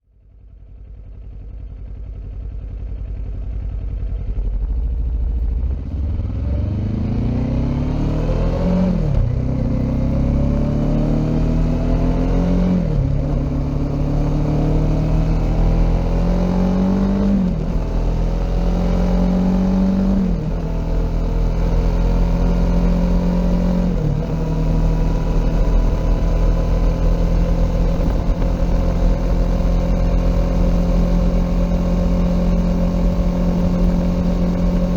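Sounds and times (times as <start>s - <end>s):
motorcycle engine accelerating: 0.6s - 34.9s.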